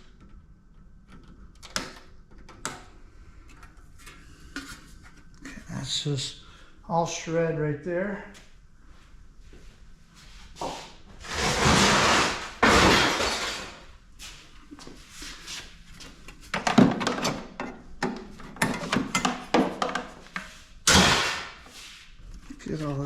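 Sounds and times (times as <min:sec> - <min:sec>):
sheet metal scraping clatter: 0:11.2 - 0:13.8.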